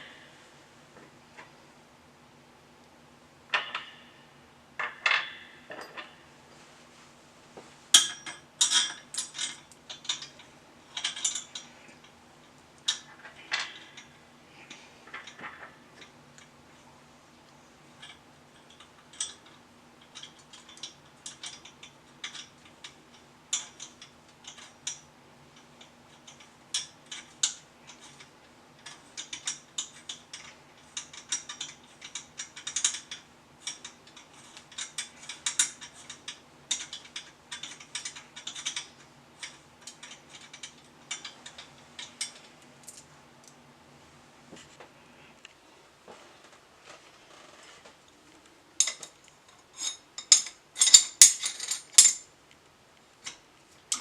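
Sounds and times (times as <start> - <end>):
faint steady hum: 0.0 - 54.0
tools clinking on bike parts: 8.0 - 10.4, 48.8 - 52.3.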